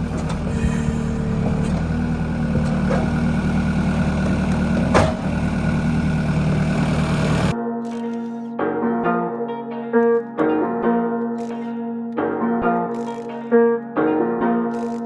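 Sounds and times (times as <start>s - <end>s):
pickup truck engine running: 0.0s - 7.5s.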